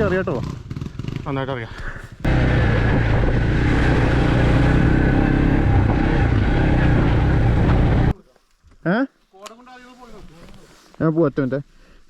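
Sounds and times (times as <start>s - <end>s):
off-road vehicle engine running: 0.0s - 8.1s.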